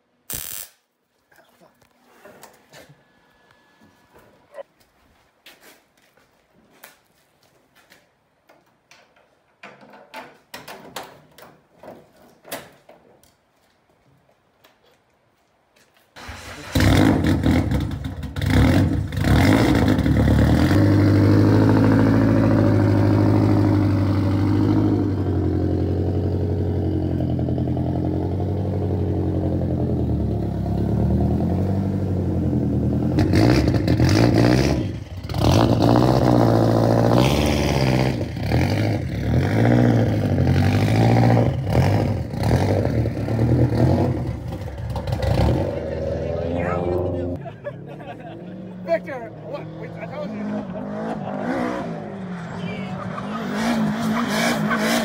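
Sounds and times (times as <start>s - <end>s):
car engine starting and idling: 16.2s - 55.0s.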